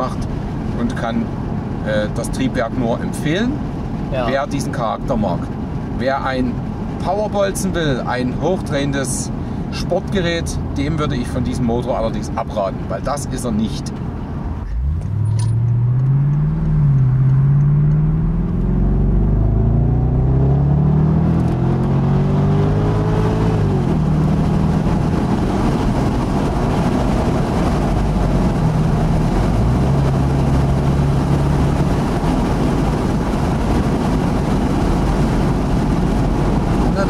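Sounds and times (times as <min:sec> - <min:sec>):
wind and road noise: 0:00.0 - 0:37.0
car engine accelerating hard: 0:13.8 - 0:37.0.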